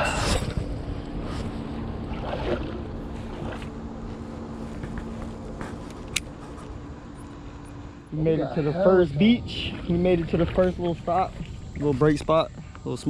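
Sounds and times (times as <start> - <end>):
wind rumbling on microphone: 0.0 - 6.4, 8.8 - 13.0
faint steady hum: 0.0 - 13.0
paddle strokes in water: 1.2 - 6.7.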